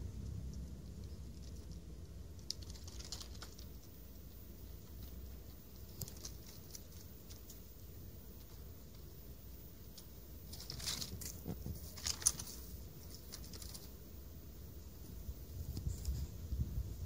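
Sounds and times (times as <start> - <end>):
low steady rumble: 0.0 - 17.0
kitten claws scratching: 0.2 - 7.8, 9.9 - 14.0.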